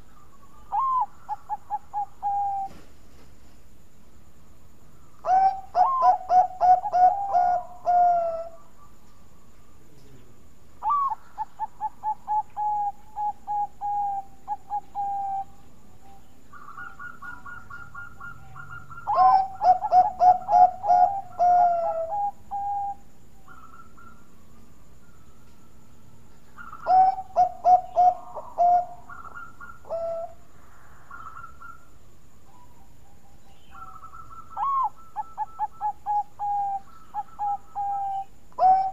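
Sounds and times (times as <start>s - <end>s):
dove cooing: 0.0s - 2.9s, 5.2s - 9.1s, 9.8s - 25.4s, 26.4s - 31.9s, 33.5s - 38.9s.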